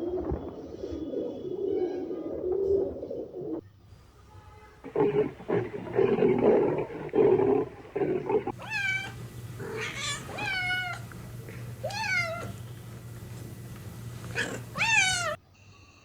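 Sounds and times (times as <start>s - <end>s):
cat meowing: 8.5s - 15.4s.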